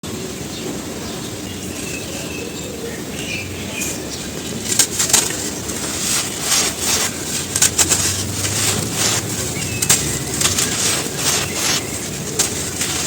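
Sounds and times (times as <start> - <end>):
steady low rumble: 0.2 - 13.0
charcoal ash crumbling in hands: 4.4 - 13.0.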